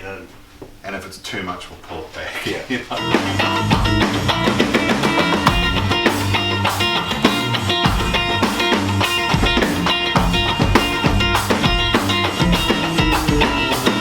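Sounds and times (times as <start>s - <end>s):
drums keeping a steady beat: 2.8s - 14.0s
bass: 2.9s - 14.0s
electric guitar: 2.9s - 14.0s.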